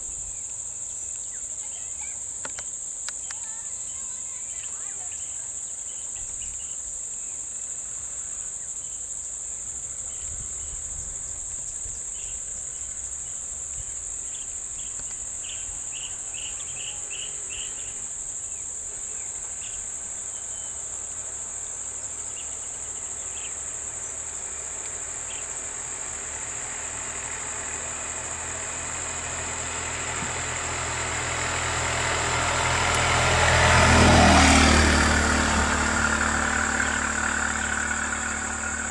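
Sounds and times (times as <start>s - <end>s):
crickets chirping: 0.0s - 38.9s
vehicle engine passing: 9.8s - 38.9s.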